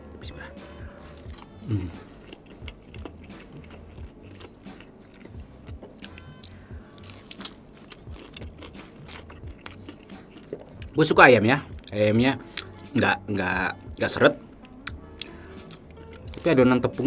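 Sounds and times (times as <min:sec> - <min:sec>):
chewing crunchy fried chicken: 0:01.1 - 0:11.0.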